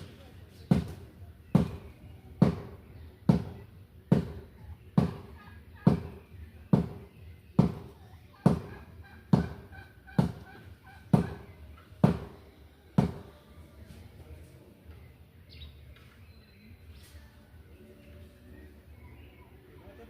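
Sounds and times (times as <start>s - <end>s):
heavy blows on wood: 0.7s - 10.5s, 11.1s - 12.4s, 13.0s - 13.3s.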